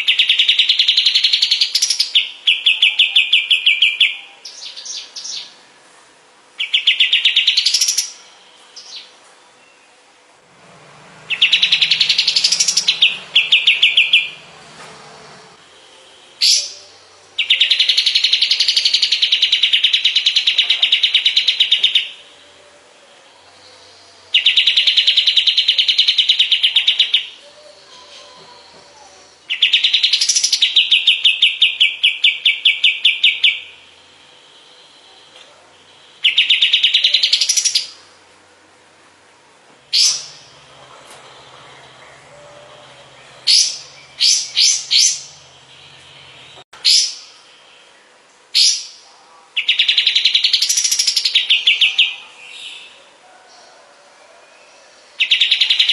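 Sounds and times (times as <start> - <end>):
bird singing rattling trills: 0.0 - 5.6, 6.6 - 10.0, 11.0 - 22.4, 23.2 - 33.9, 34.5 - 38.0, 39.9 - 49.0, 49.6 - 53.0
sharp upward bird note: 11.2 - 14.6.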